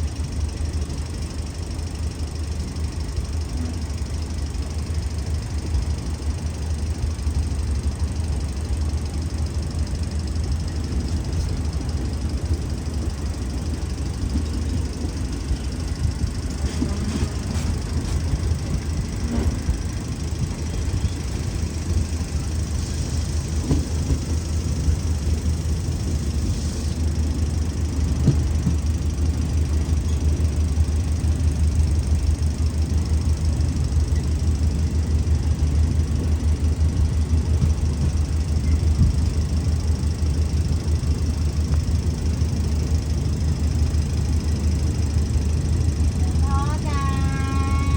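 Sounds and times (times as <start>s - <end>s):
locomotive engine rumbling: 0.0s - 47.9s.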